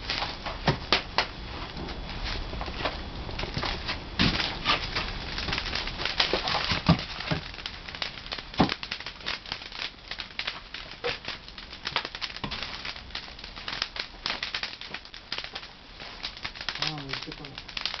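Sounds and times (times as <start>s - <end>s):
firewood crackling and popping: 0.0s - 18.0s.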